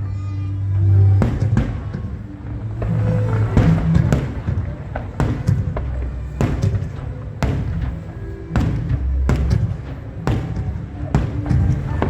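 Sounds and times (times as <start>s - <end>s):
music over loudspeakers: 0.0s - 12.0s
fireworks bursting: 1.2s - 12.0s.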